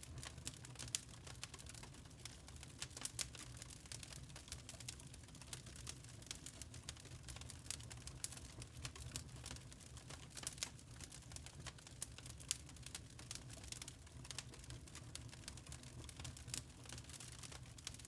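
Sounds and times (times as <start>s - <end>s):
charcoal crackling: 0.1s - 10.8s.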